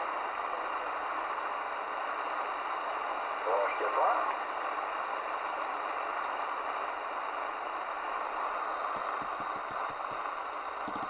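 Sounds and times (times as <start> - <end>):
radio receiver hissing: 7.9 - 11.0
rapid clicks: 9.0 - 10.3.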